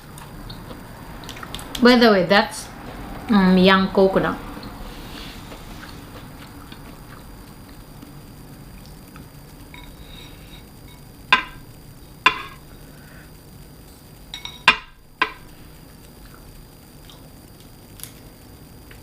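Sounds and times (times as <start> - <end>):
tableware clinking against dish: 12.3 - 12.6, 14.3 - 15.4.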